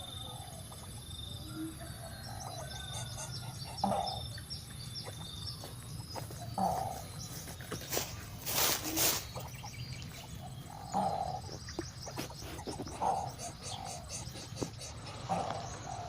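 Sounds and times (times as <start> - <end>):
rough bird calls: 0.0 - 16.0
rustling: 7.3 - 9.6.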